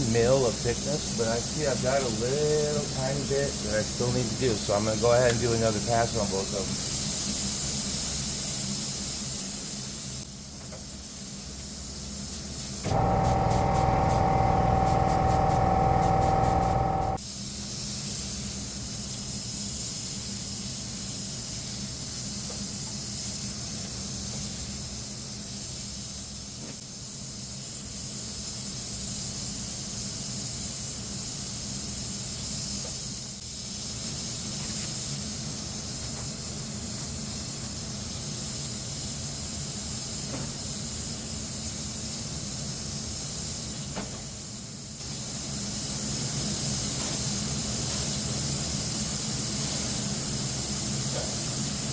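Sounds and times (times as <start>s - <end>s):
spray gun hissing: 12.9s - 17.2s
steady low hum: 12.9s - 17.2s.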